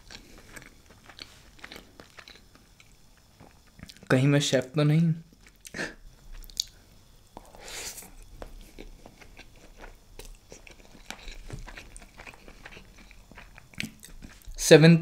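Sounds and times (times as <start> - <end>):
person chewing: 0.0 - 4.1, 5.3 - 6.8, 7.4 - 14.6
breathy hiss: 5.6 - 11.5.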